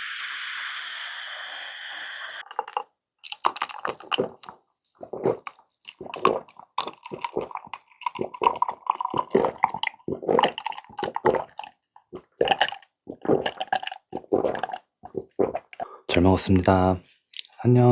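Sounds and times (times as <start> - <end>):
steady hiss: 0.0 - 2.4
wet chewing mouth sounds: 2.7 - 16.0.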